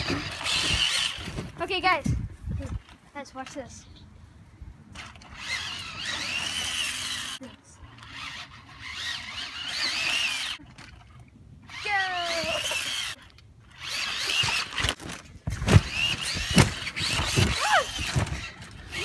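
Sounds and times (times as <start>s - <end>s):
electric motor whining and revving: 0.0s - 1.4s, 5.0s - 10.6s, 11.7s - 15.0s, 15.6s - 19.0s.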